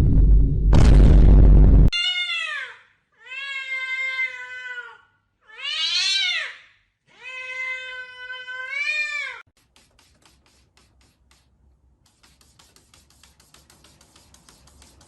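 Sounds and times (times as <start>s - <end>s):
cat meowing: 2.0s - 9.4s.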